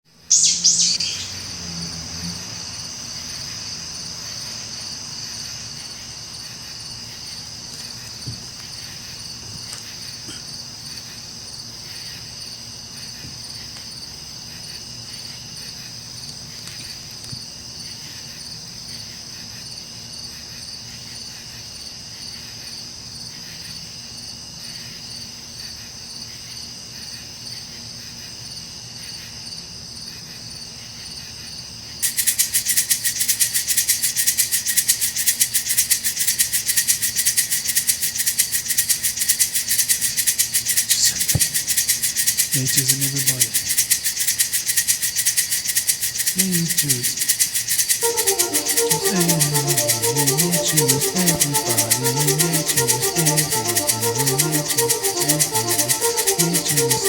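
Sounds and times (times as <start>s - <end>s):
insects chirring: 0.3s - 1.6s, 32.0s - 48.1s.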